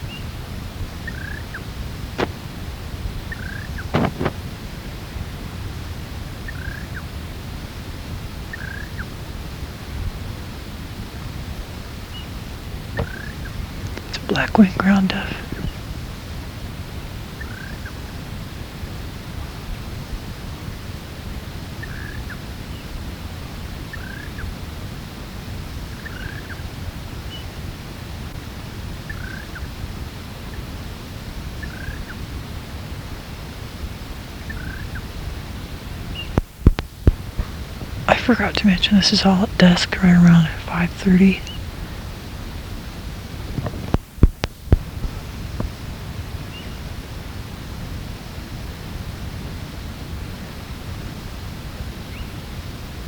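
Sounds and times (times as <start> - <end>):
low rumble of wind: 0.0 - 14.4, 29.7 - 53.0.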